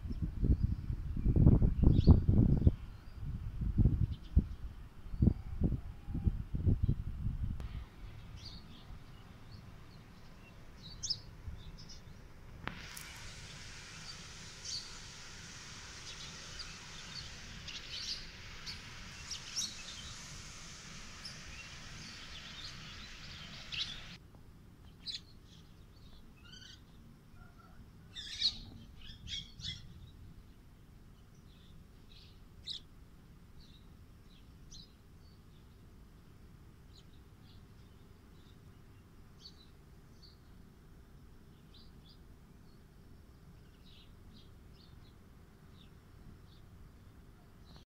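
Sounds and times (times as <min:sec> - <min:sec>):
steady high hiss: 0:07.1 - 0:27.3, 0:28.0 - 0:47.8
birds chirping and calling: 0:15.8 - 0:24.2.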